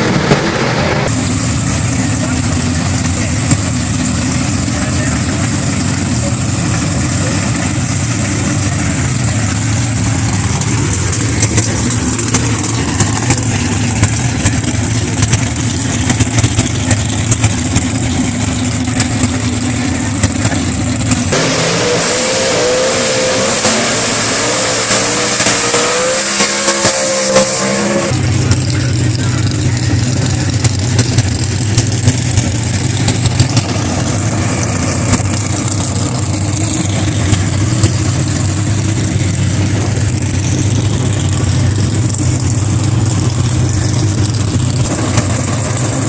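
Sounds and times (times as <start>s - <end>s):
race car engines rumbling: 0.0s - 46.0s
engine note rising and falling: 20.0s - 46.0s.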